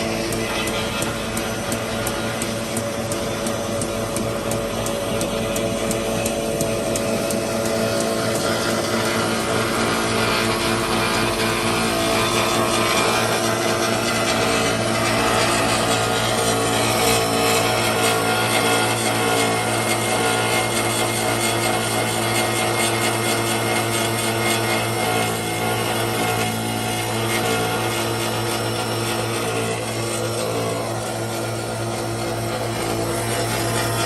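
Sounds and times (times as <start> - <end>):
paper cutter machine running: 0.0 - 34.0.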